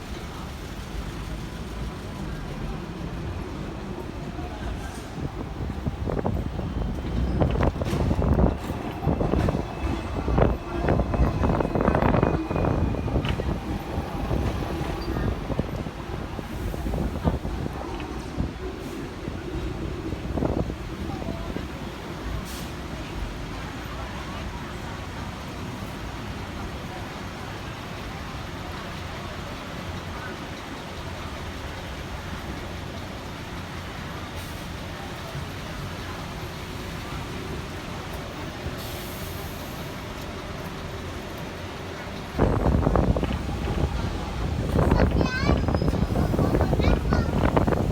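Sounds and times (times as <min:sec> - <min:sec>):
road traffic: 0:00.0 - 0:47.9
tram rumbling: 0:00.0 - 0:47.9
wind on microphone: 0:04.7 - 0:21.8, 0:42.3 - 0:47.9.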